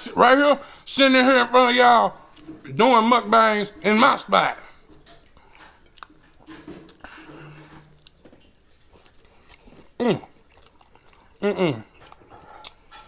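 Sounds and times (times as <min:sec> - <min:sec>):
man chewing: 0:02.2 - 0:02.7, 0:04.6 - 0:13.0
man humming mm: 0:11.4 - 0:11.9
short vocal sound: 0:11.4 - 0:11.9.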